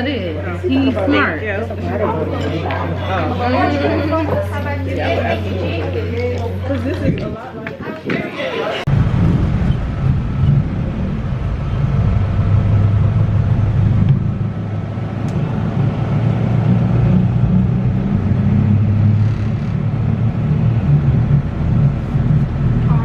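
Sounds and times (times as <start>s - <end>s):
car engine and road rumble: 8.9s - 23.0s.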